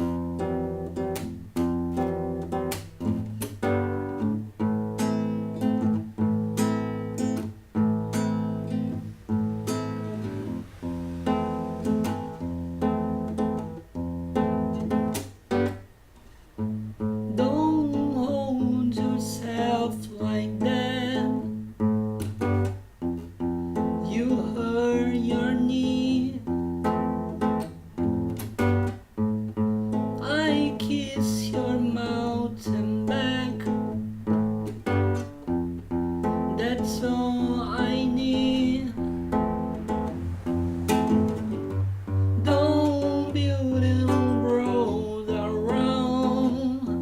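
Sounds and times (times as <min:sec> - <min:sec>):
acoustic guitar strumming: 0:00.0 - 0:47.0
person singing: 0:17.3 - 0:21.6, 0:24.0 - 0:26.5, 0:30.2 - 0:34.0, 0:36.5 - 0:39.2, 0:42.4 - 0:47.0.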